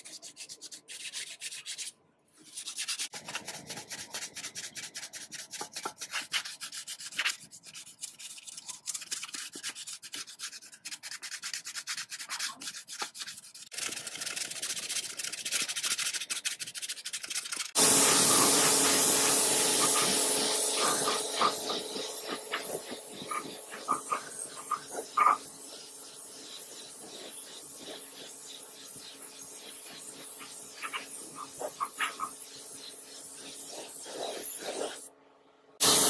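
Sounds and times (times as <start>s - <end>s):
loud steady hiss: 17.8s - 31.4s.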